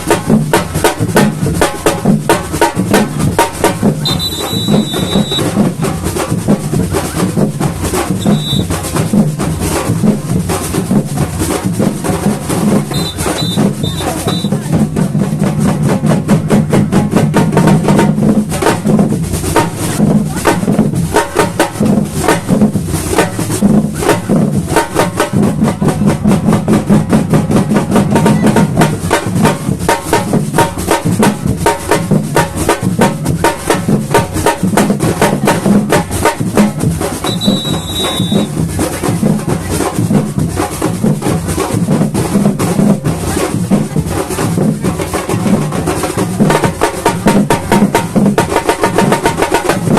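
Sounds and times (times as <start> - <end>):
drum ensemble playing: 0.0 - 49.9
high whistle note: 4.0 - 5.5, 8.2 - 8.7, 12.9 - 14.5, 37.2 - 38.6.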